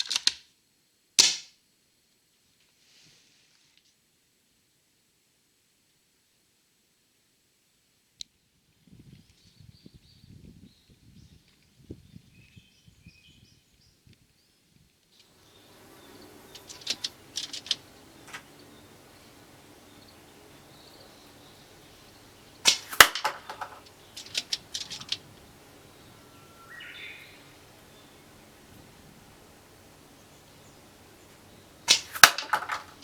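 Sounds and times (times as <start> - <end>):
faint bird chirps: 9.2 - 14.7, 15.4 - 33.0
airsoft rifle shot: 22.6 - 25.2, 31.8 - 33.0.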